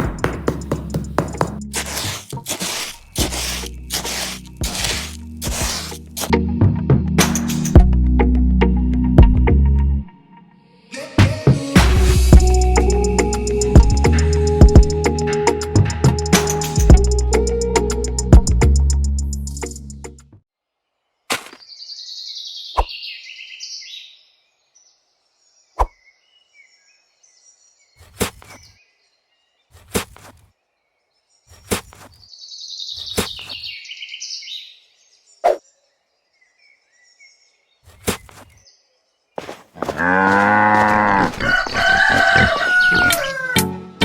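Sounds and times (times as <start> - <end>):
music: 5.0 - 20.4, 42.9 - 44.0.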